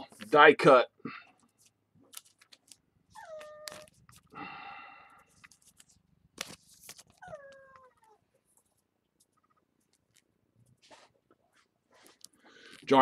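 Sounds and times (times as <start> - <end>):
cards clicking: 1.6 - 2.8
dog whimpering: 3.2 - 3.8.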